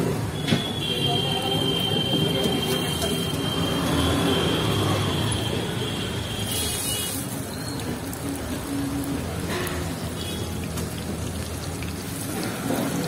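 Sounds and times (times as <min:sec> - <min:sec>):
street traffic: 0:00.0 - 0:13.0
food sizzling on a griddle: 0:06.4 - 0:13.0.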